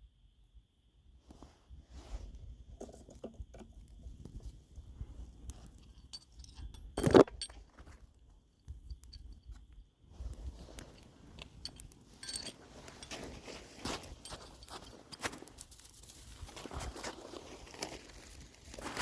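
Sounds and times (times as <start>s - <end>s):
handling clicks and rustling: 5.4s - 19.0s.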